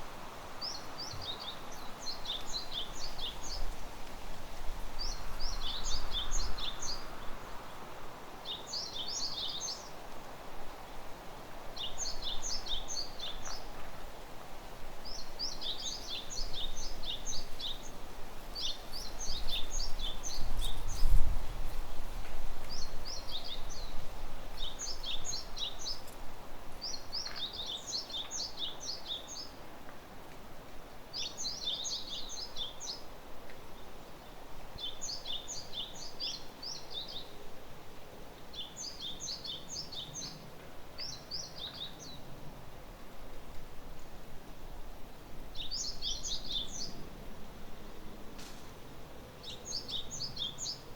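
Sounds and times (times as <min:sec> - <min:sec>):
forest ambience hiss: 0:00.0 - 0:50.9
songbird high chirping: 0:00.6 - 0:03.8, 0:05.0 - 0:07.4, 0:08.4 - 0:10.0, 0:11.8 - 0:13.8, 0:15.0 - 0:18.0, 0:18.6 - 0:21.3, 0:22.6 - 0:26.2, 0:26.8 - 0:29.6, 0:31.1 - 0:33.1, 0:33.8 - 0:37.4, 0:38.5 - 0:42.4, 0:45.5 - 0:47.1, 0:49.4 - 0:50.9.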